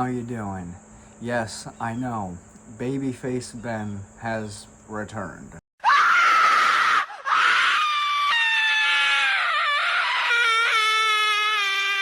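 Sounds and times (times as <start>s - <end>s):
person screaming high-pitched: 5.8s - 12.0s.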